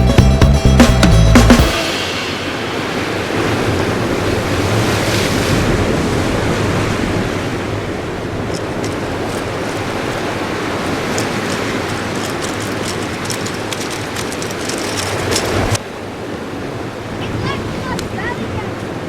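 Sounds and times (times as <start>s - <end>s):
music: 0.0s - 3.0s
surf washing on shore: 1.6s - 19.0s.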